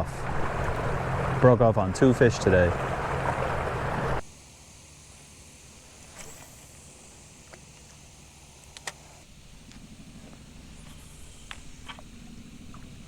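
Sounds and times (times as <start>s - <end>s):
rushing water: 0.0s - 4.2s
electric trolling motor humming: 0.0s - 13.0s.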